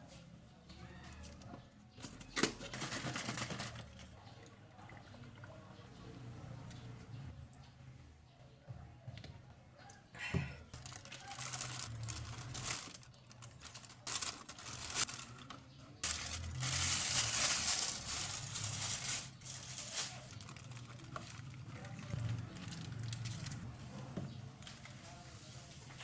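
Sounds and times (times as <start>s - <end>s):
plastic packaging crinkling: 2.0s - 4.0s, 10.7s - 23.7s.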